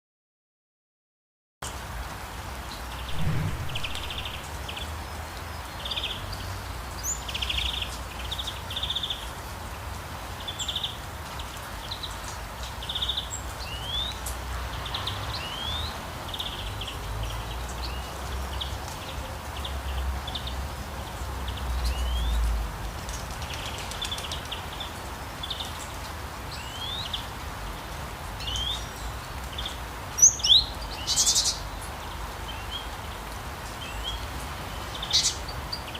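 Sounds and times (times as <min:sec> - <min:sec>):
steady low rumble: 0:03.1 - 0:04.9.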